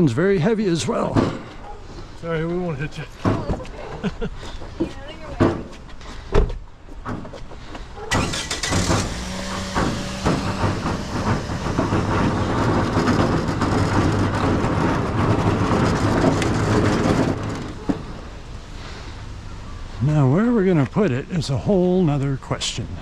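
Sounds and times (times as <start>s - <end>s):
vehicle engine humming: 7.6s - 23.0s
loud rattling and scraping: 8.1s - 19.3s.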